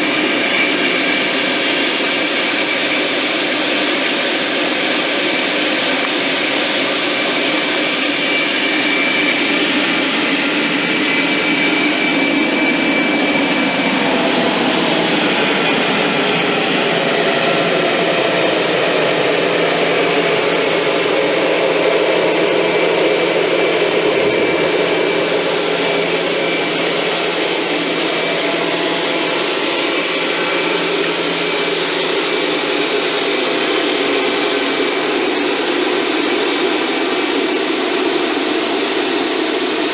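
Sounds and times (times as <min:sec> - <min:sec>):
high whining tones: 0:00.0 - 0:39.7
jet engines running: 0:00.0 - 0:39.9.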